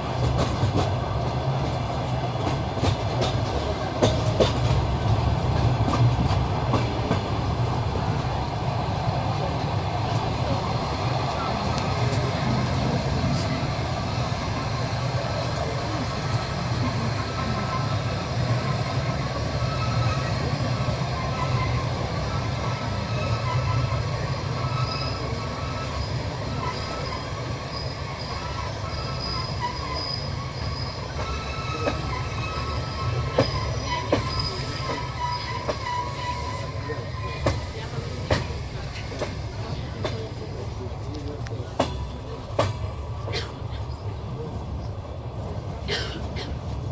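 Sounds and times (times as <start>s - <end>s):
train wheels rumbling on rails: 0.0s - 46.9s
wheels squealing: 0.5s - 40.8s.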